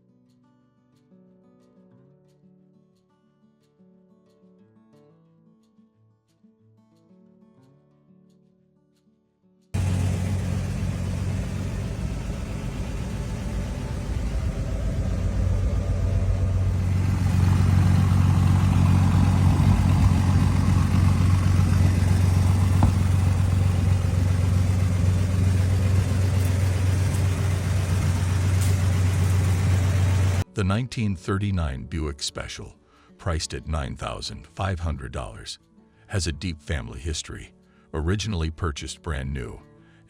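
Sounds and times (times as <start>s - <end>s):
car engine deep exhaust note: 9.8s - 30.4s.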